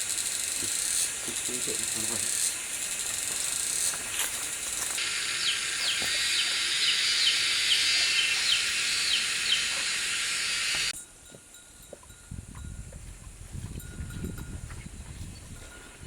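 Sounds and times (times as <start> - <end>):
insect high-pitched hiss: 0.0 - 11.0.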